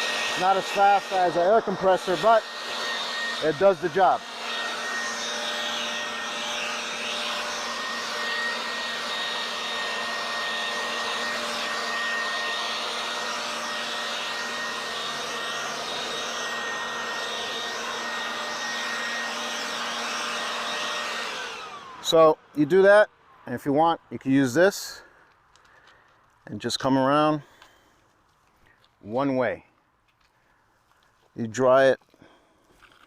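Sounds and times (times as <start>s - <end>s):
leaf blower running: 0.0s - 23.5s.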